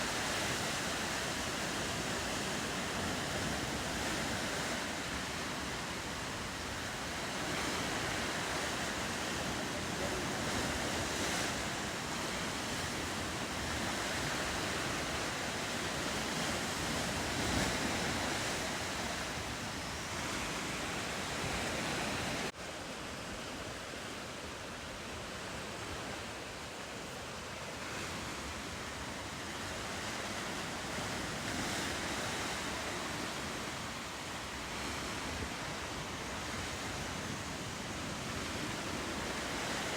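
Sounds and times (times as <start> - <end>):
ocean surf and waves: 0.0 - 39.9
wind: 0.0 - 39.9.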